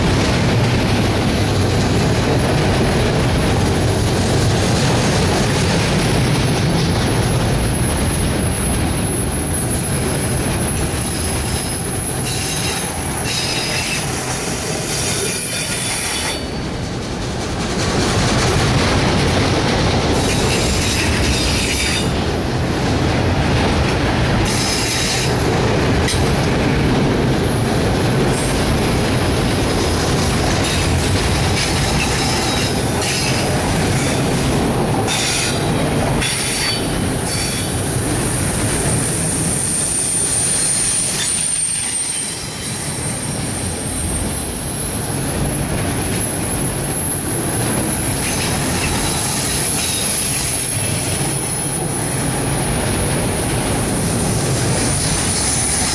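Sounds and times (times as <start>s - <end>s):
train wheels squealing: 7.6s - 16.8s, 20.2s - 22.1s, 24.4s - 25.4s, 31.6s - 34.4s, 35.1s - 45.0s, 47.9s - 51.9s.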